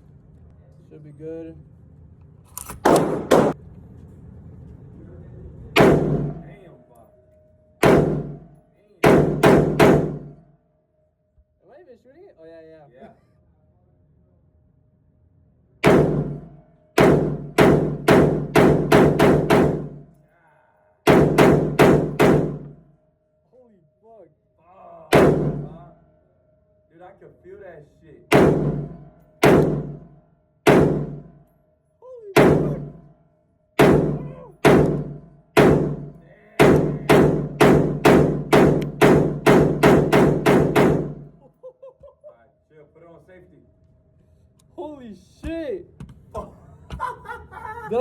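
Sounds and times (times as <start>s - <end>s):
gunshots: 2.8s - 3.6s, 5.8s - 6.6s, 7.8s - 10.4s, 15.8s - 20.1s, 21.1s - 22.8s, 25.1s - 25.9s, 28.3s - 31.3s, 32.4s - 33.0s, 33.8s - 41.3s.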